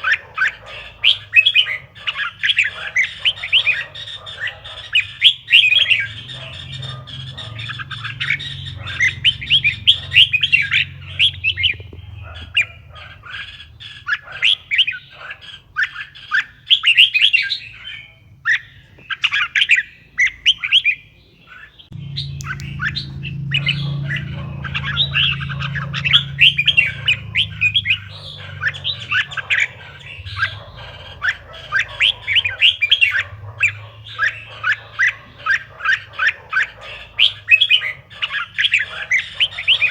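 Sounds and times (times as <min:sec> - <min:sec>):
birds singing and chattering: 0:00.0 - 0:39.9
low steady hum: 0:21.9 - 0:34.3.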